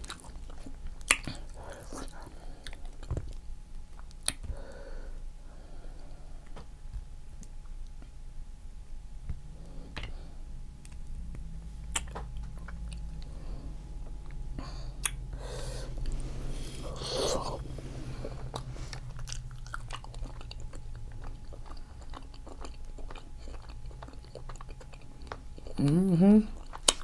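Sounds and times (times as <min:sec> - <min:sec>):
close chewing and biting: 0:00.0 - 0:04.5, 0:11.8 - 0:13.4, 0:16.0 - 0:27.0
faint low hum: 0:00.0 - 0:27.0
wet mouth clicks and smacks: 0:01.0 - 0:01.4, 0:03.9 - 0:04.5, 0:11.9 - 0:13.1.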